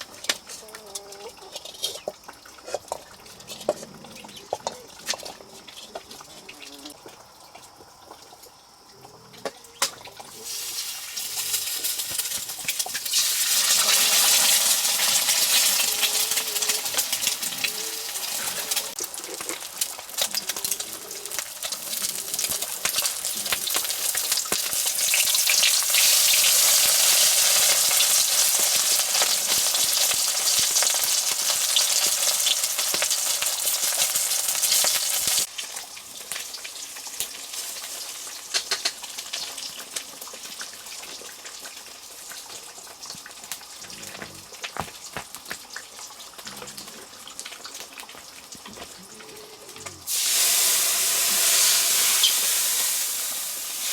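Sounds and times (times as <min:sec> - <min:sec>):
crackles and clicks: 0:00.0 - 0:50.1
food sizzling in a pan: 0:10.3 - 0:46.5, 0:50.0 - 0:53.9.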